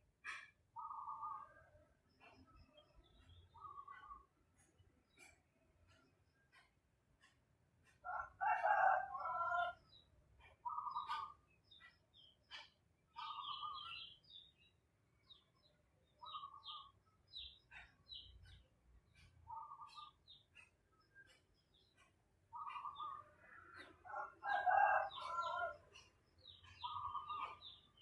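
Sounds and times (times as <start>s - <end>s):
birds calling: 0.2s - 28.0s
high bird chirps: 13.2s - 14.6s, 26.5s - 28.0s.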